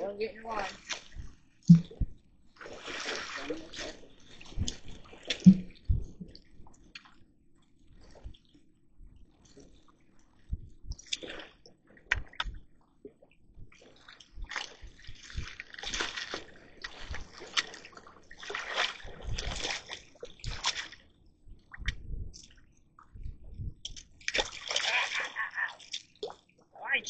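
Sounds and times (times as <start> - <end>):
water splashing and sloshing: 0.0 - 27.0.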